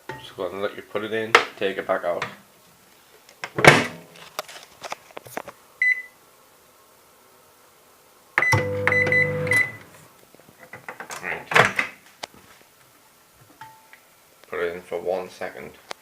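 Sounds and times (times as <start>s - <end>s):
keypad beep: 8.4s - 9.8s
microwave humming: 8.4s - 10.0s.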